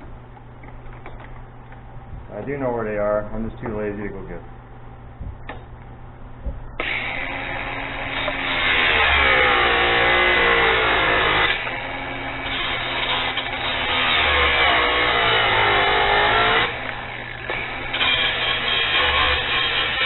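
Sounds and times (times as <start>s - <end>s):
angle grinder cutting steel wire: 6.8s - 20.0s.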